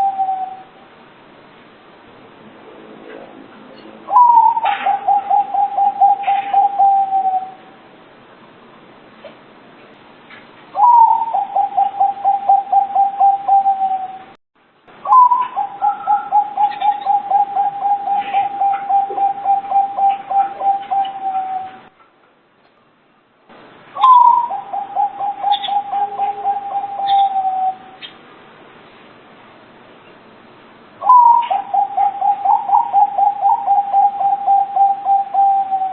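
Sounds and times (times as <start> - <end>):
dove cooing: 0.0 - 0.8, 4.1 - 7.7, 10.8 - 14.3, 15.1 - 21.9, 24.0 - 28.1, 31.0 - 35.9.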